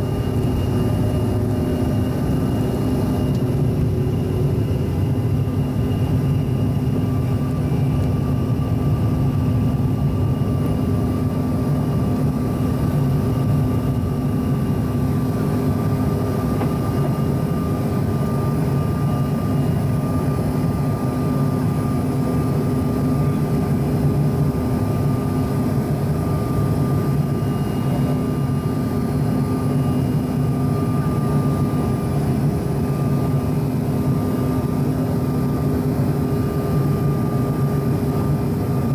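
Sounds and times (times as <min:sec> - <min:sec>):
airliner cabin engine hum: 0:00.0 - 0:38.9
thin steady engine whine: 0:00.0 - 0:38.9.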